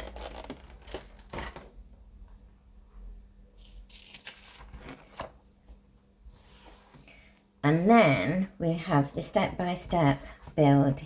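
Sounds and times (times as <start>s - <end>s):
paper rustle: 0.0s - 1.8s, 3.6s - 5.4s.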